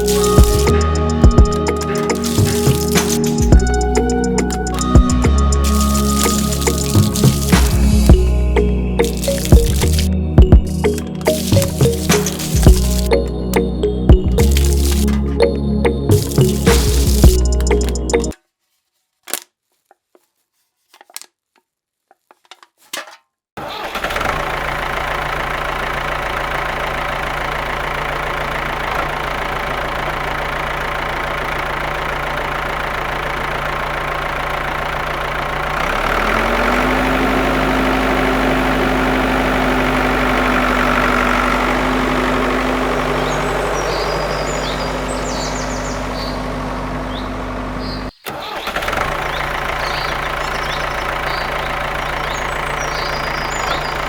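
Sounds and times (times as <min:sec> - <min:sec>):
small motor humming: 0:00.0 - 0:13.2, 0:35.1 - 0:48.1.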